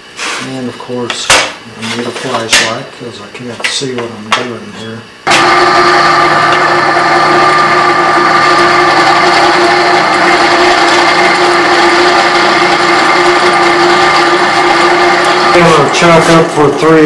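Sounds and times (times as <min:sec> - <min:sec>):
drill press motor humming: 0:05.2 - 0:17.0.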